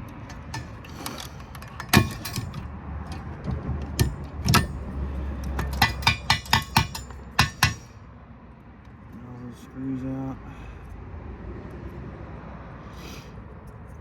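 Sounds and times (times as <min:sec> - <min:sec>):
metallic clicks of screws: 0:00.0 - 0:07.8.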